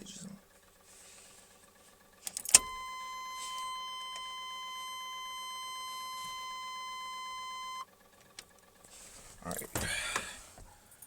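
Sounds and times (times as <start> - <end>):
ignition key click: 2.2 - 3.0
dashboard warning tone: 2.5 - 7.9.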